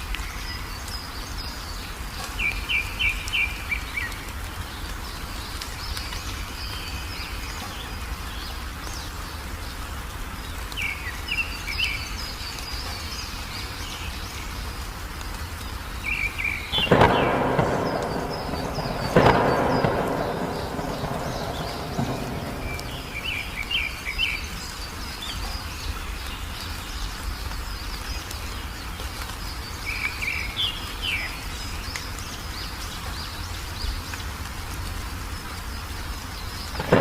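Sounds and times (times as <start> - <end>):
steady rain: 0.0 - 37.0
small bird chirping: 16.0 - 26.0
thunderclap rumbling: 16.7 - 24.6, 36.8 - 37.0.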